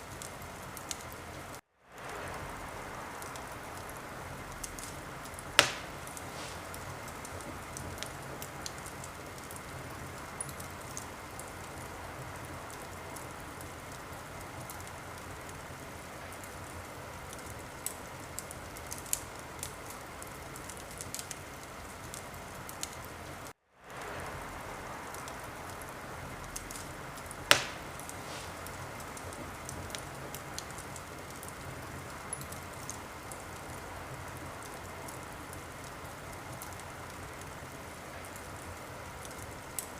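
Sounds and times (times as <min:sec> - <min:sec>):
wood fire crackling: 0:00.0 - 0:39.9
loud fire pops: 0:00.1 - 0:16.7, 0:23.9 - 0:33.5.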